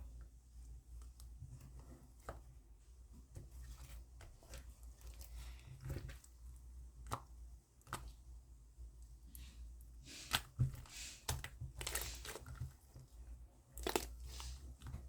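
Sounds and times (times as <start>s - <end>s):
slime squishing: 0.0s - 15.0s.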